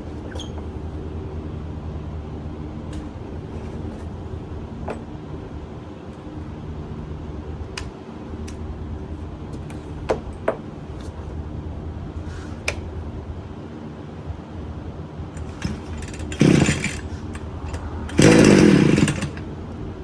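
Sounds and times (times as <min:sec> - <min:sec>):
small engine idling: 0:15.4 - 0:19.5.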